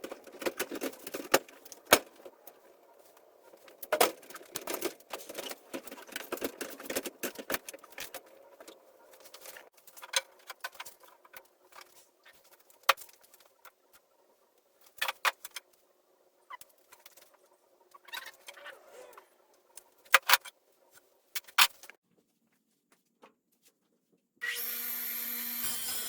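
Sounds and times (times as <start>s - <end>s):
metal rattling and scraping: 0.0s - 12.0s.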